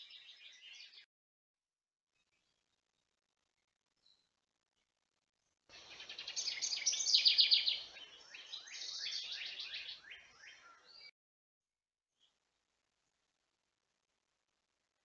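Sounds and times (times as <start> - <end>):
songbird singing trills: 0.0 - 1.0, 5.7 - 11.1.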